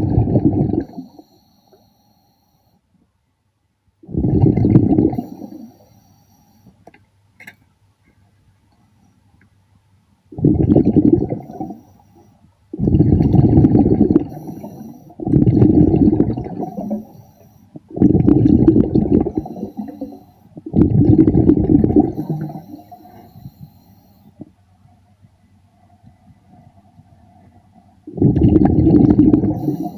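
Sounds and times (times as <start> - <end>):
underwater breath bubbling: 0.0 - 2.6, 4.0 - 6.7, 10.3 - 24.5, 28.1 - 29.9.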